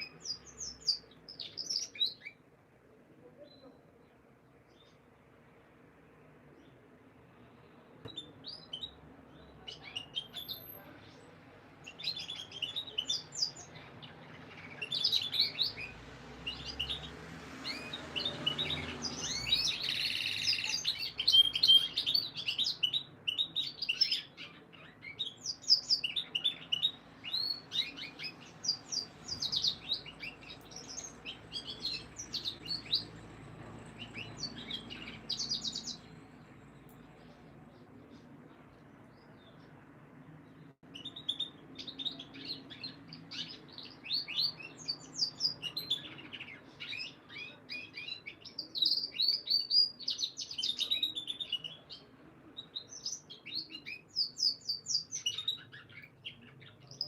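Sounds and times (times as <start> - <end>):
canaries chirping: 0.0 - 2.5, 6.1 - 57.0.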